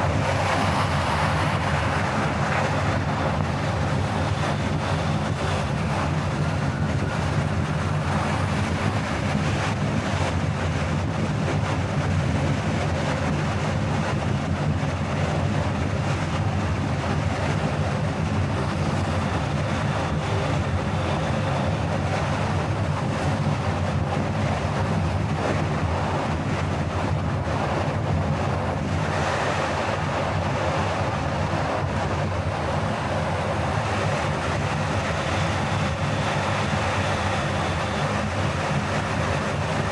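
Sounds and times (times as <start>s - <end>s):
car road and engine noise: 13.8s - 39.9s.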